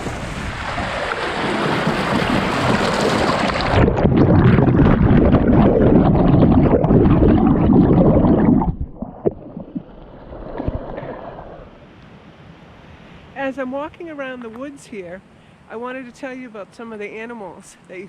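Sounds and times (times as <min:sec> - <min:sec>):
muffled underwater gurgle: 0:00.0 - 0:11.7
rushing water: 0:00.0 - 0:11.8.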